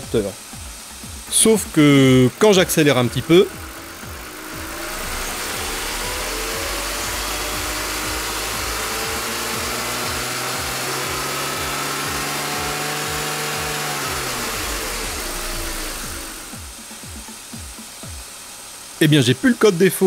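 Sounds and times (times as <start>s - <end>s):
car engine revving: 0.7s - 16.8s.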